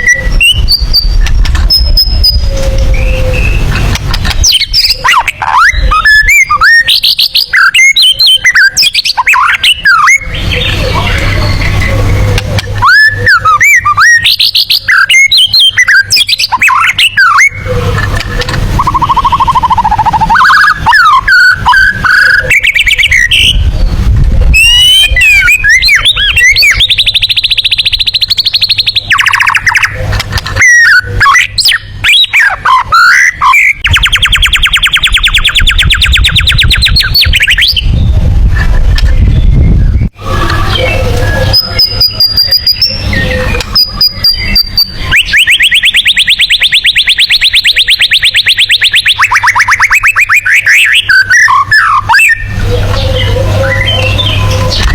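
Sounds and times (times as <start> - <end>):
bird singing: 0.0 - 38.2, 39.0 - 54.9
high-pitched bird trills: 0.0 - 38.2, 39.0 - 54.9.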